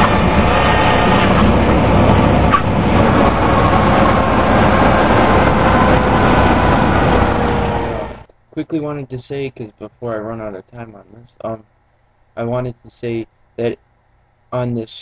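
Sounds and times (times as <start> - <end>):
propeller aircraft engine drone: 0.0 - 8.5.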